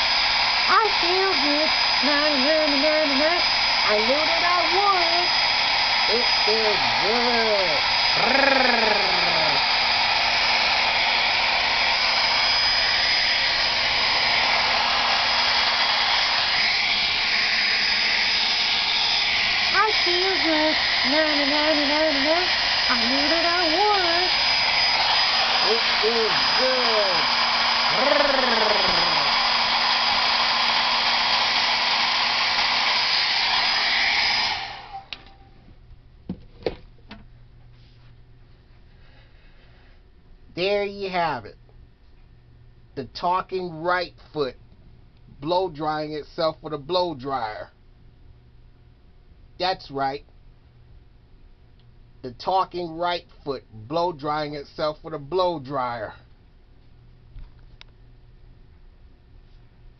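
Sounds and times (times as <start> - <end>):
hair dryer blowing: 0.0 - 35.4.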